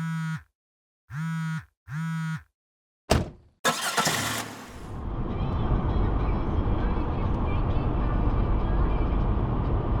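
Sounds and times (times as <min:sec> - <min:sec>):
short buzzing tones: 0:00.0 - 0:00.5, 0:01.1 - 0:02.5.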